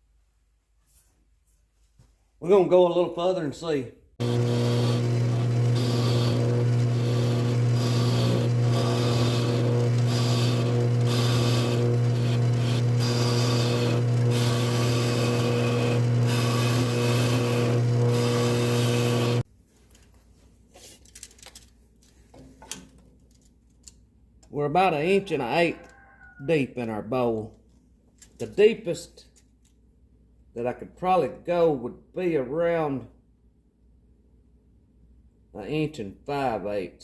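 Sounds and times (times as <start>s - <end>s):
gouge scraping spinning wood: 4.2s - 19.4s
lathe motor hum: 4.2s - 19.4s.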